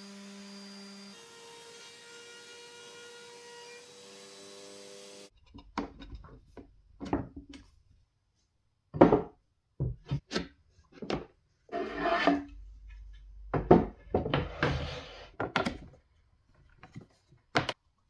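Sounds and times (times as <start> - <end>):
wooden knocks and rubs: 9.0 - 16.0.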